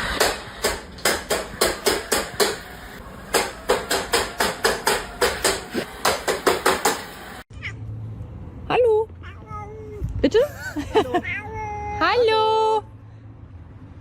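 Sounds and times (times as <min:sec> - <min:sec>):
rapid sharp knocks: 0:00.1 - 0:02.7, 0:03.3 - 0:07.1.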